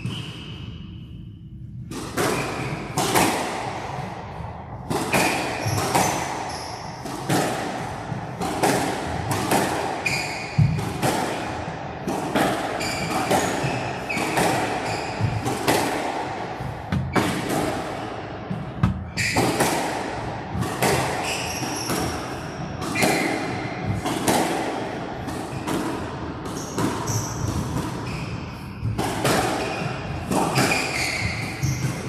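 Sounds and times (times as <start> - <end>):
squash ball hits: 1.8 - 4.0, 4.7 - 32.0
shoes squeaking on wooden floor: 30.6 - 31.8.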